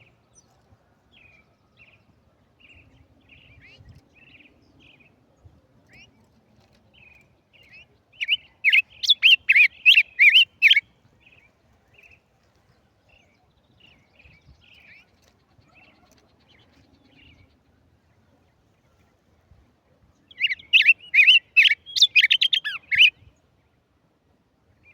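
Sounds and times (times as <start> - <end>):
songbird twittering: 7.0 - 11.4, 20.3 - 23.2.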